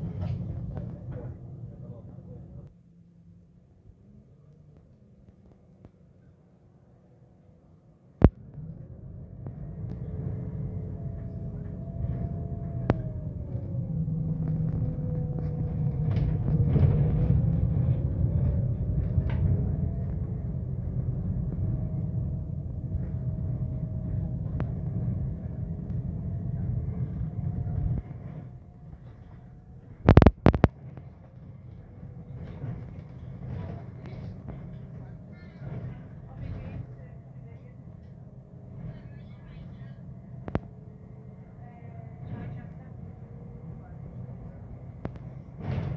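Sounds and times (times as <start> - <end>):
bus engine rumble: 0.0 - 45.9
gearbox whining: 9.2 - 30.7.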